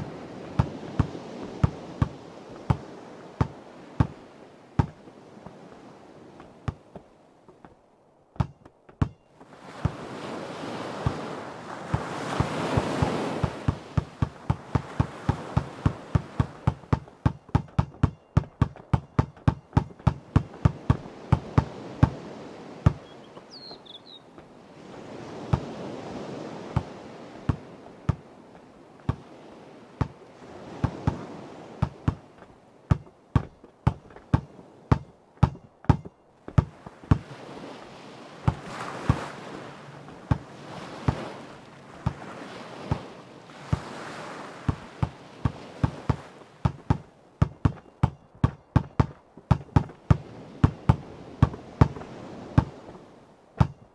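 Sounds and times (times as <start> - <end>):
sea waves washing: 0.0 - 8.3, 9.3 - 53.9
basketball bouncing on hard ground: 0.5 - 4.2, 4.8 - 5.0, 6.4 - 7.8, 8.4 - 10.0, 11.9 - 22.2, 22.8 - 23.2, 25.5 - 25.8, 26.8 - 28.2, 29.0 - 29.2, 30.0 - 30.2, 30.8 - 37.3, 38.5 - 39.2, 44.7 - 52.0, 52.6 - 52.8, 53.6 - 53.8
bird chirp: 23.0 - 24.3.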